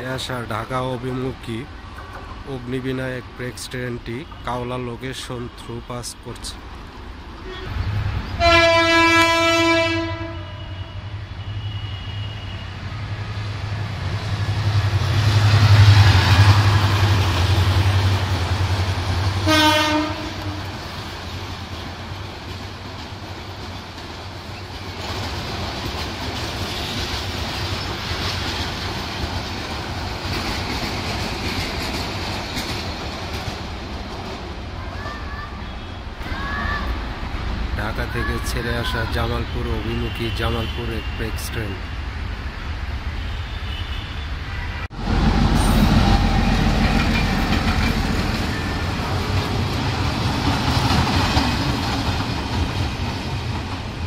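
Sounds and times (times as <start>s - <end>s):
train wheel noise: 6.6s - 39.5s, 44.8s - 54.0s
diesel locomotive rumble: 6.6s - 39.7s, 44.8s - 54.0s
train horn blast: 7.4s - 7.8s, 8.4s - 12.8s, 19.4s - 20.8s.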